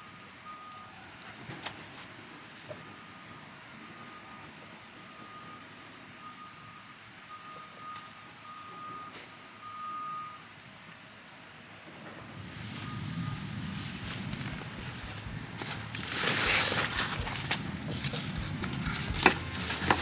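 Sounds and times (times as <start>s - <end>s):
vehicle reversing alarm beeping: 0.0s - 1.4s, 2.3s - 10.9s, 12.2s - 20.0s.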